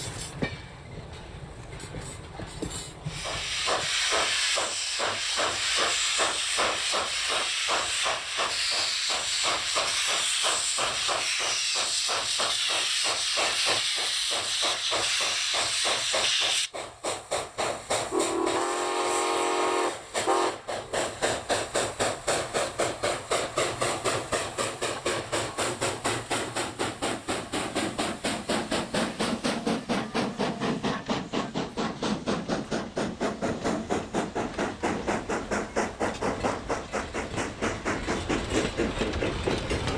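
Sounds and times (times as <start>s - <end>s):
steam locomotive chuffing: 0.0s - 39.9s
steam hiss: 1.9s - 39.9s
steam whistle blast: 18.1s - 20.6s.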